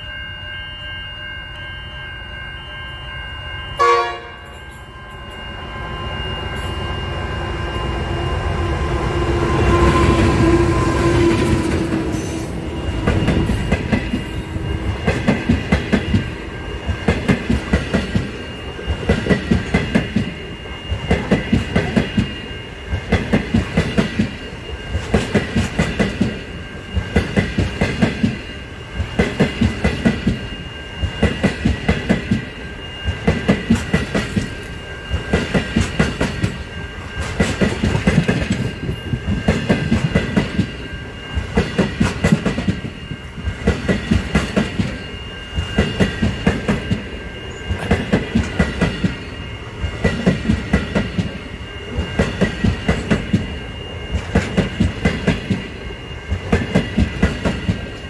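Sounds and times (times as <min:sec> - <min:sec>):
high-pitched ring: 0:00.0 - 0:58.0
train horn blast: 0:03.8 - 0:04.6, 0:08.6 - 0:12.5
locomotive passing: 0:04.1 - 0:58.0.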